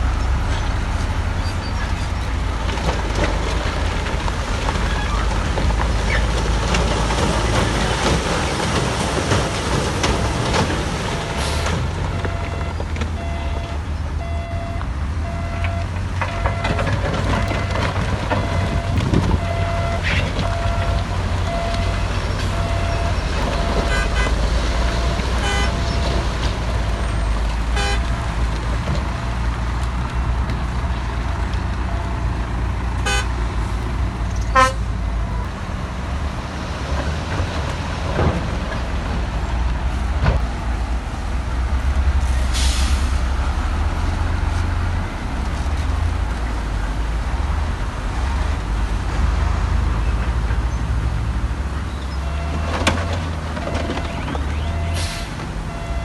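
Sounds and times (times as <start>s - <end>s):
diesel engine rumbling: 0.0s - 56.0s.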